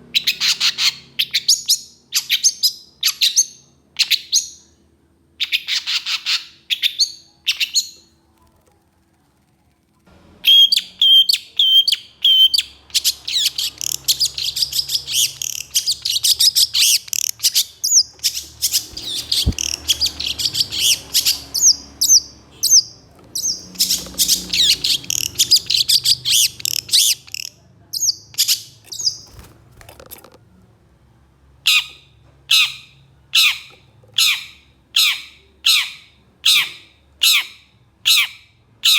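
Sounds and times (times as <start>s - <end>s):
bird singing harsh notes: 10.4s - 29.5s.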